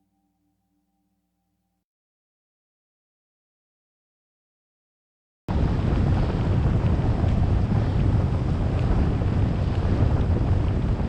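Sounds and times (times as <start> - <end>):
wind buffeting microphone: 5.5 - 11.0.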